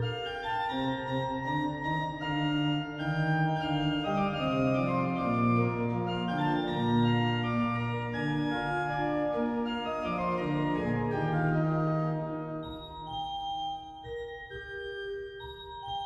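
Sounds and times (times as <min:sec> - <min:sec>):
pipe organ playing baroque music: 0:00.0 - 0:13.4.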